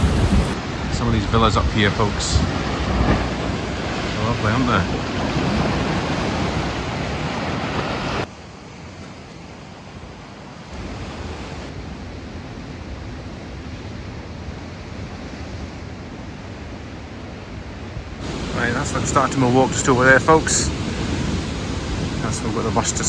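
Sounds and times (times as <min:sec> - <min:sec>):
wind on microphone: 0:00.0 - 0:01.0
surf from rough sea: 0:00.0 - 0:23.0.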